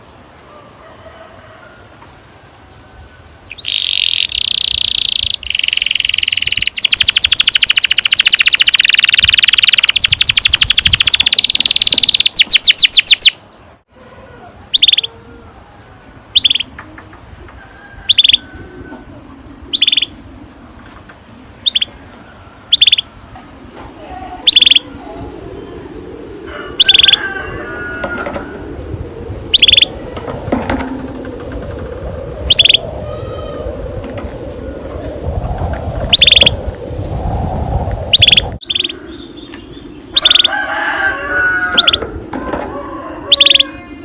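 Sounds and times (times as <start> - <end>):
faint bird twittering: 3.4 - 40.6, 43.1 - 44.0
canary chirping: 3.6 - 13.4, 14.8 - 15.1, 16.4 - 16.7, 22.8 - 23.0, 24.5 - 24.8, 29.6 - 29.9, 32.5 - 32.8, 40.2 - 40.5.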